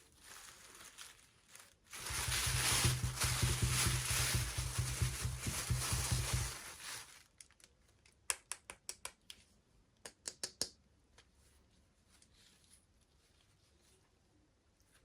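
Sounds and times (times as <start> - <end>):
packaging crinkling: 0.0 - 7.8
small sharp clicks and taps: 7.4 - 9.4, 10.0 - 11.3.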